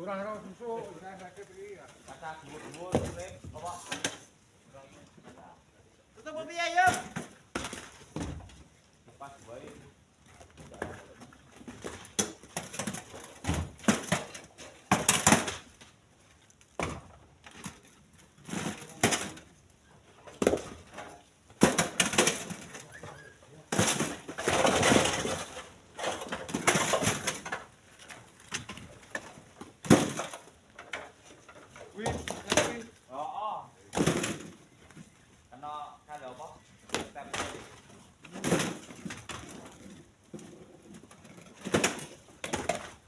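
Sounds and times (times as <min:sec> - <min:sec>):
stones clattering into truck bed: 0:11.6 - 0:15.8, 0:16.8 - 0:19.5, 0:20.3 - 0:23.0, 0:23.6 - 0:32.9, 0:33.9 - 0:34.7, 0:36.9 - 0:43.0.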